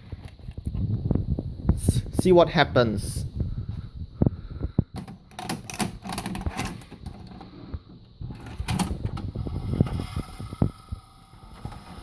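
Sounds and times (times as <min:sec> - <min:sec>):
tape player mechanism whirring: 0:08.2 - 0:12.0.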